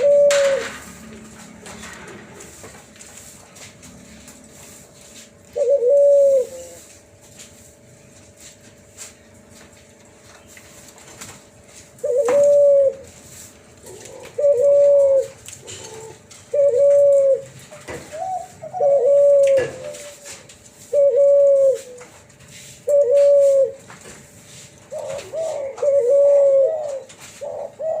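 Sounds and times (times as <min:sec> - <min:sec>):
dove cooing: 0:00.0 - 0:01.0, 0:05.5 - 0:06.9, 0:12.0 - 0:13.1, 0:13.8 - 0:22.2, 0:22.8 - 0:23.9, 0:24.9 - 0:28.0.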